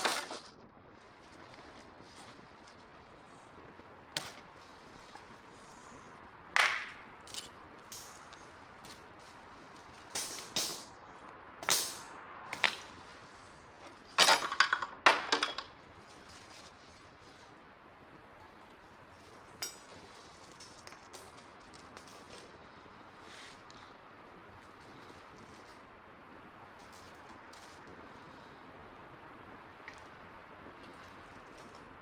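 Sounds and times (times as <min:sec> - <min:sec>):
campfire burning: 0:00.0 - 0:14.2, 0:15.7 - 0:32.0
firewood popping and cracking: 0:01.3 - 0:10.6.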